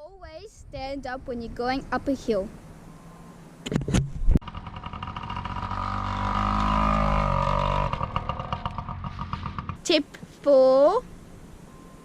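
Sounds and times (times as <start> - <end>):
motorbike engine running: 4.4 - 9.9
sharp knocks: 6.3 - 9.8.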